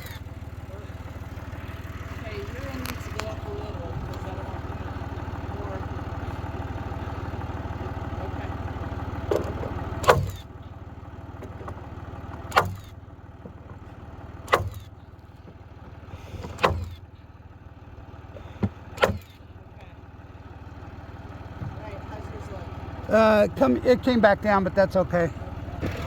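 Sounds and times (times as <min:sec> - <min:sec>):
tractor engine running: 0:00.0 - 0:26.0
sharp knocks: 0:09.3 - 0:10.4, 0:12.4 - 0:13.6, 0:14.5 - 0:14.9, 0:16.4 - 0:17.0, 0:18.6 - 0:19.3.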